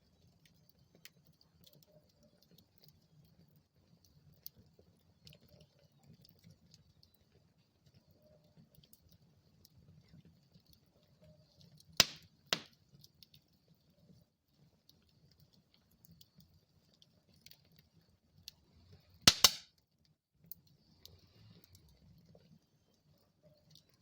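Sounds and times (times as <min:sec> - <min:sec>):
fire crackling: 0:00.0 - 0:19.6
burning wood popping: 0:11.7 - 0:13.4, 0:19.3 - 0:19.6.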